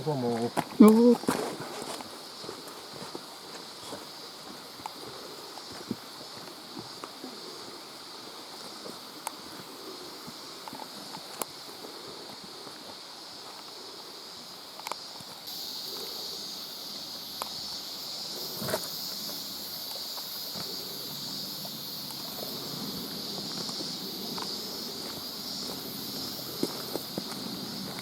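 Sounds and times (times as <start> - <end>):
stream hiss: 0.0 - 28.0
footsteps: 0.2 - 7.2, 17.0 - 28.0.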